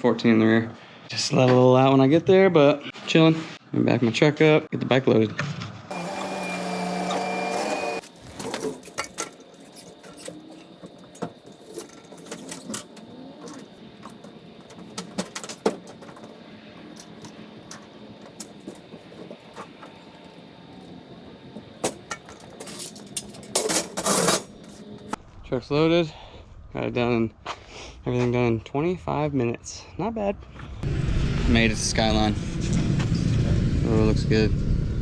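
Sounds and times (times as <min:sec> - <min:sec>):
steady hum: 0:05.9 - 0:25.2
clicks clanks and knocks: 0:08.0 - 0:20.0.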